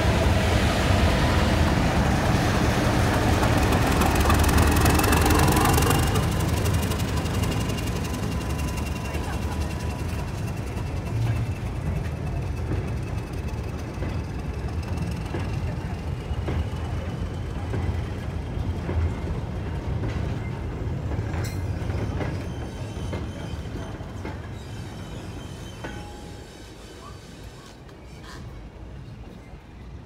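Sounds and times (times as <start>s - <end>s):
goods train rumbling past: 0.0s - 30.0s
train wheel clicks and knocks: 2.9s - 16.8s, 18.8s - 22.4s.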